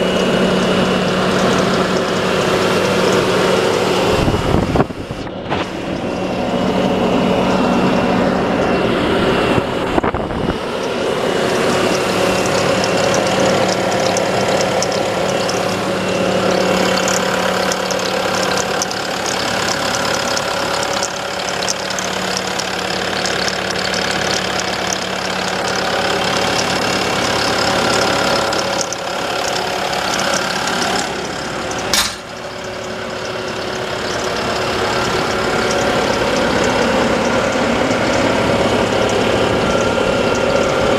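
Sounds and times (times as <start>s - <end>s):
diesel engine running: 0.0s - 40.9s
short sharp click: 31.9s - 32.3s.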